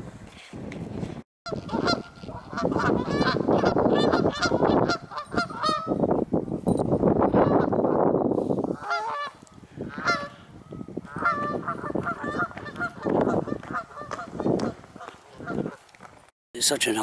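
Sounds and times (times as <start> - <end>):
geese honking: 1.5 - 6.0, 8.8 - 10.4, 11.1 - 15.8.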